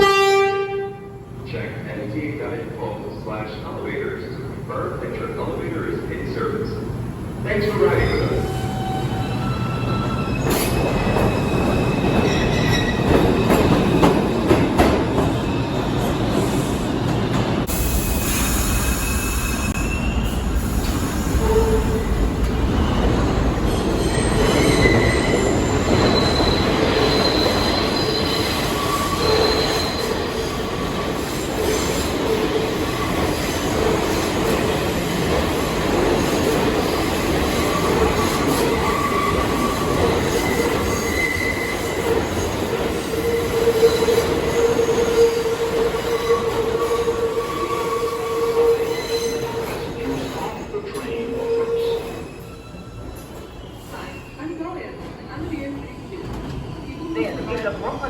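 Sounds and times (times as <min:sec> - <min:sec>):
subway train rumbling: 0:00.0 - 0:58.0
train wheels squealing: 0:07.9 - 0:14.2, 0:15.2 - 0:22.0, 0:22.7 - 0:32.1, 0:37.5 - 0:54.7.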